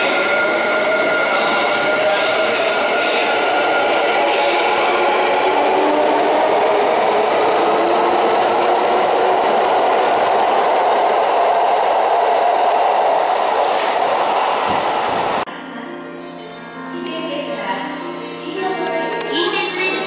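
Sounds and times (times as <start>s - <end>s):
electric train running past: 0.0s - 15.5s.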